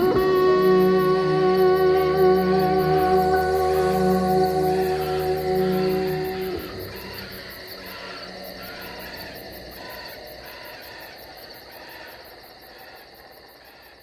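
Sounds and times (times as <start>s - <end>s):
steady high hum: 0.0s - 8.7s
other animal calls: 0.0s - 11.1s
insect chirping: 0.0s - 14.0s.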